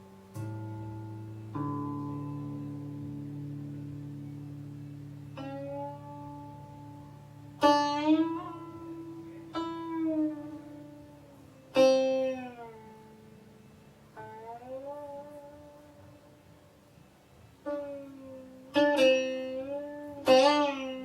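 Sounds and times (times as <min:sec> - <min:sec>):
zither plucked notes: 0:00.0 - 0:21.0.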